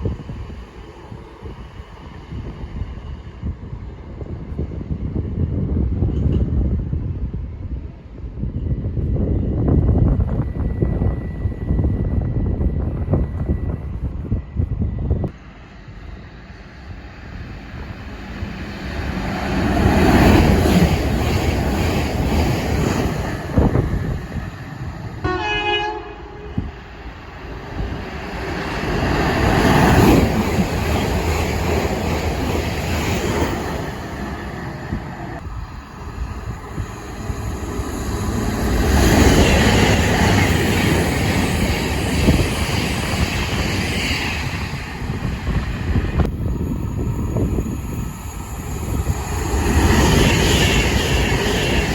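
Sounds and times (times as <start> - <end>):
trains rushing past: 0.0 - 51.9
train horn blast: 25.2 - 26.8.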